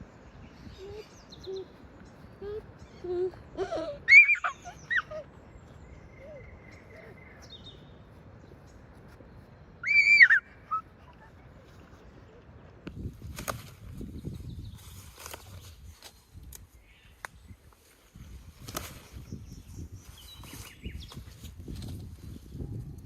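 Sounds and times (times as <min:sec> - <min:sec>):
bird calling: 0:00.6 - 0:08.0, 0:09.8 - 0:12.3.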